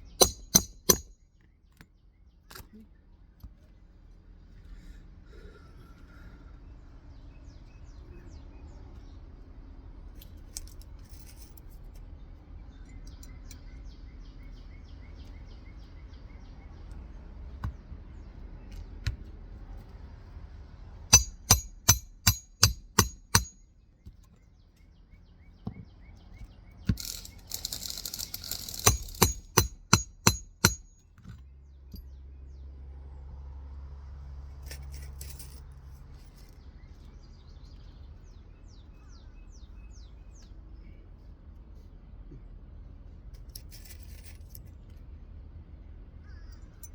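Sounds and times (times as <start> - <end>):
hammer driving nails: 0.0 - 1.2, 21.1 - 23.6, 26.9 - 31.4.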